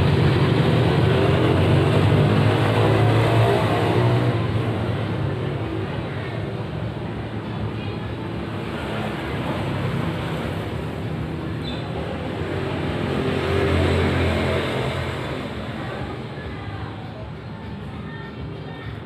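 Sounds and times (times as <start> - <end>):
vehicle engine passing: 0.0 - 5.2, 8.6 - 16.5.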